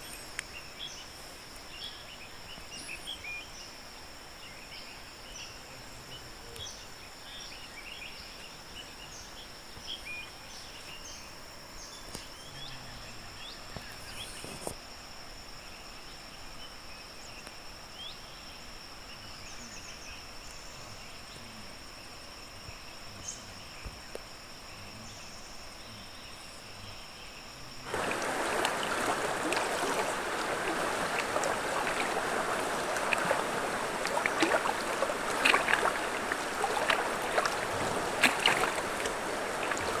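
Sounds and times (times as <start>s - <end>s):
rushing water: 0.0s - 3.2s, 27.8s - 40.0s
insect drone: 0.0s - 40.0s
water splashing loudly: 27.9s - 40.0s.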